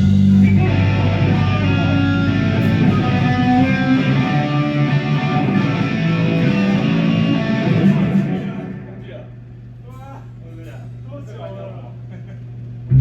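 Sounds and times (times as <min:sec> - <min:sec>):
rock band playing live: 0:00.0 - 0:09.0.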